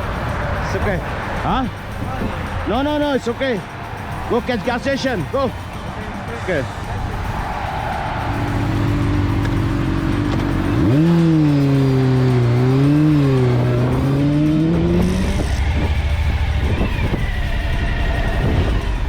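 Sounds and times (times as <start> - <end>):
motorcycle engine revving: 8.0 - 19.0.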